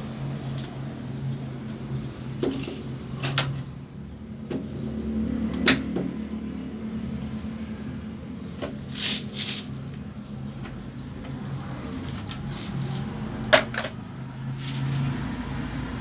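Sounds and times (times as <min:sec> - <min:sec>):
clicks and knocks of hard parts: 0:02.4 - 0:03.7, 0:13.5 - 0:14.0.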